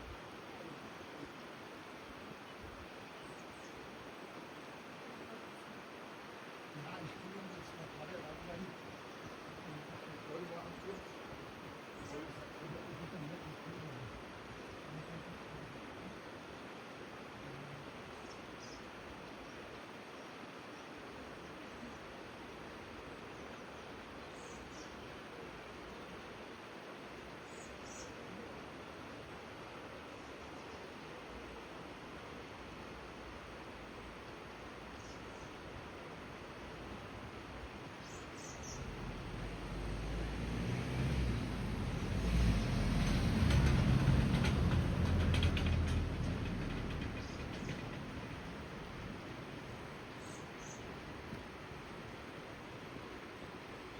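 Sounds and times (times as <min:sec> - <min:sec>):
river water rushing: 0:00.0 - 0:53.9
bird chirping: 0:38.0 - 0:39.8, 0:46.6 - 0:51.0
passing vehicle rumbling and rattling: 0:38.6 - 0:51.0.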